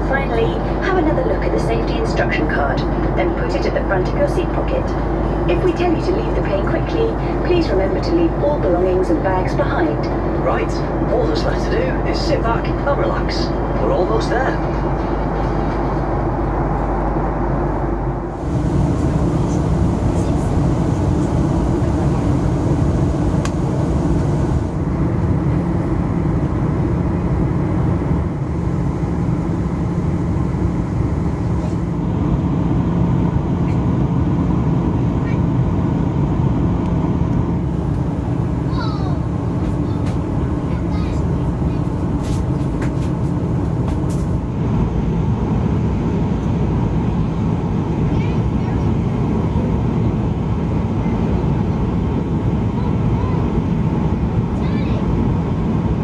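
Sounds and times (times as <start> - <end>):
airplane cabin engine hum: 15.4 - 56.0.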